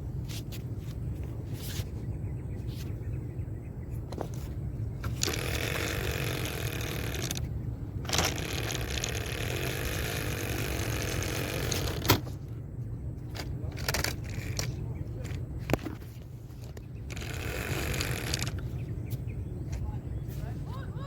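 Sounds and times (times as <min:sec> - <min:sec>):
wheels scraping rough ground: 0:04.2 - 0:12.5
toy car motor whirring: 0:05.0 - 0:07.5, 0:08.1 - 0:12.2, 0:17.1 - 0:18.6
sharp clicks: 0:05.0 - 0:12.2, 0:16.8 - 0:18.7.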